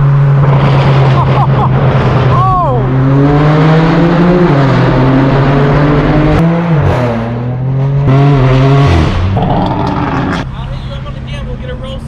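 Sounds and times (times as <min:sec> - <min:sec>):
car engine running loud: 0:00.0 - 0:11.7
exhaust crack: 0:08.0 - 0:10.6.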